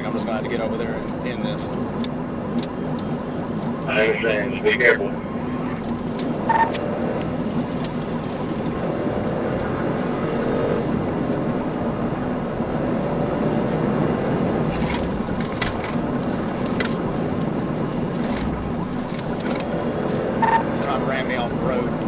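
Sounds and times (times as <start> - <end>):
car engine and road noise: 0.0 - 22.0
low cabin hum: 2.7 - 6.7.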